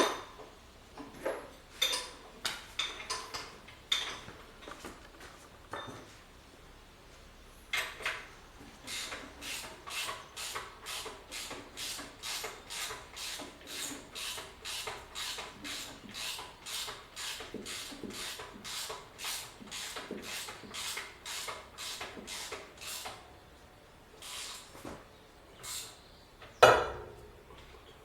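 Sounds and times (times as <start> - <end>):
hand tool scraping strokes: 8.8 - 23.2, 24.2 - 24.8.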